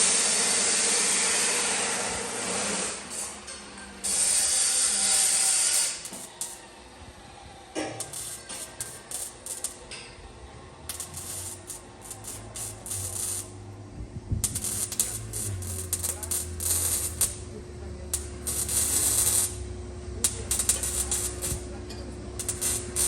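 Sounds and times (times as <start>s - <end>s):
hissing and clattering bursts: 0.0s - 6.7s, 7.8s - 10.1s, 20.3s - 21.7s.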